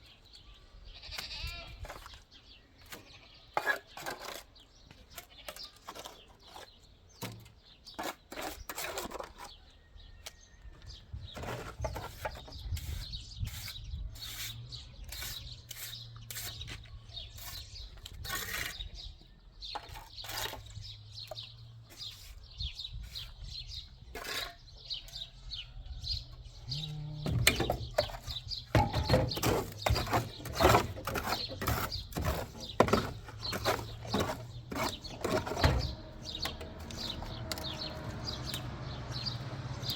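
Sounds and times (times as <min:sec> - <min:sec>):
scraping and knocking on cement: 0:02.9 - 0:09.6, 0:11.2 - 0:19.1, 0:19.7 - 0:22.4, 0:23.0 - 0:25.2, 0:26.8 - 0:38.7.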